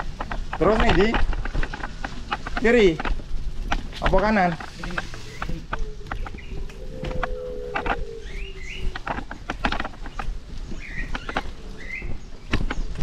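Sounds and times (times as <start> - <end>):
bicycle rattling on rough lane: 0.0 - 13.0
low wind rumble: 0.0 - 13.0
bird chirping: 4.6 - 13.0.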